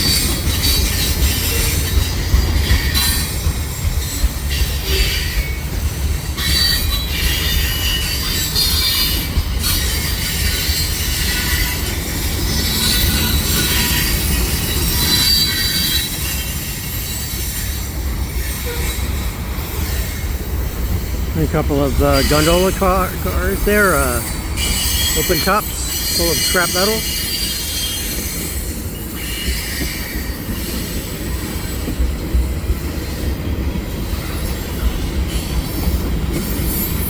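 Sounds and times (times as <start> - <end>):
steel wheels squealing: 0.0 - 21.1, 24.2 - 31.8
freight cars rumbling: 19.1 - 27.1.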